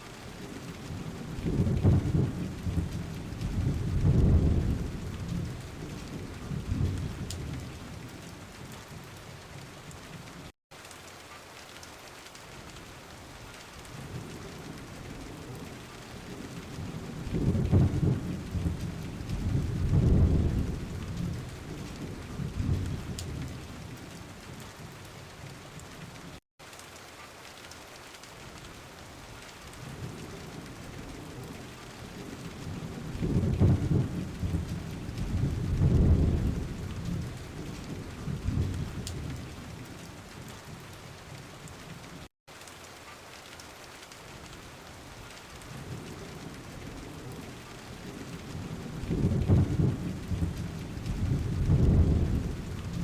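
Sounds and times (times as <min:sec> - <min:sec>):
steady rain: 0:00.0 - 0:53.0
rolling thunder: 0:00.3 - 0:08.3, 0:13.9 - 0:24.9, 0:29.8 - 0:40.8, 0:45.6 - 0:53.0.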